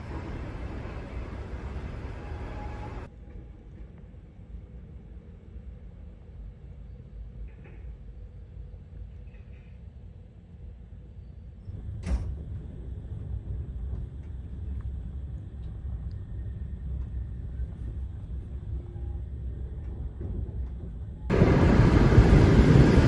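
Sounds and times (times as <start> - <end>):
loud rolling train noise: 0.0 - 6.5, 11.7 - 23.0
train carriage rumble: 0.0 - 23.0.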